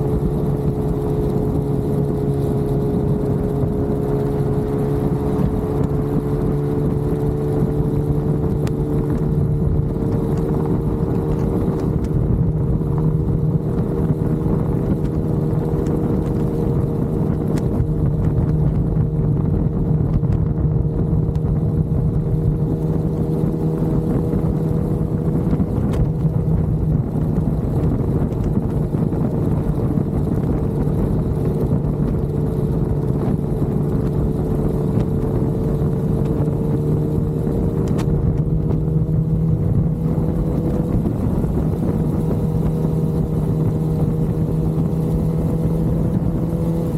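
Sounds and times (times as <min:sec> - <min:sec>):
motorcycle engine drone: 0:00.0 - 0:46.9
road rumble: 0:00.0 - 0:46.9
wind noise: 0:00.0 - 0:46.9.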